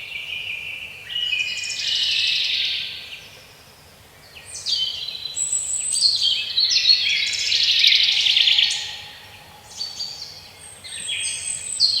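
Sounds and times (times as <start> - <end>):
songbirds chirping and trilling: 6.8 - 12.0.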